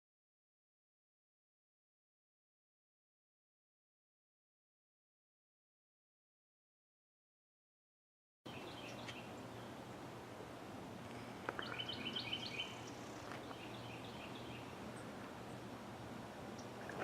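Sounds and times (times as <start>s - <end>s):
small birds chirping: 8.5s - 17.0s
steady background hiss: 8.5s - 17.0s.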